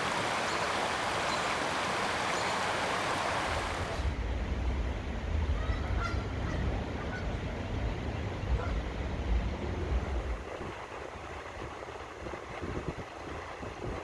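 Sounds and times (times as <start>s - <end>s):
low wind rumble on microphone: 2.8s - 14.0s.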